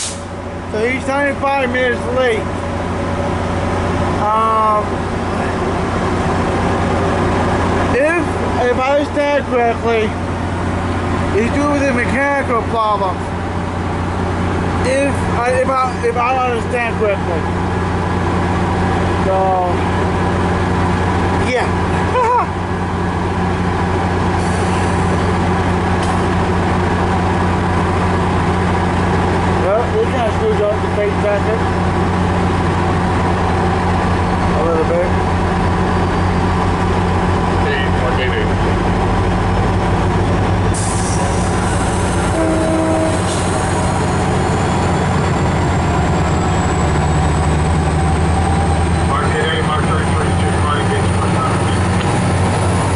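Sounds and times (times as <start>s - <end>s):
hiss: 0.0s - 0.3s
diesel locomotive idling: 0.0s - 52.9s.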